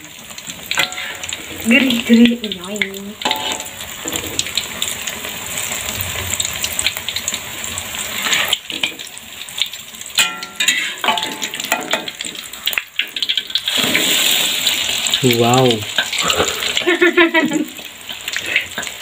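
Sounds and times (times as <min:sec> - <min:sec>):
food sizzling in hot oil: 0:00.0 - 0:19.0
metal spatula scraping a pan: 0:00.7 - 0:02.1, 0:03.2 - 0:04.6, 0:08.1 - 0:09.1, 0:10.2 - 0:14.9.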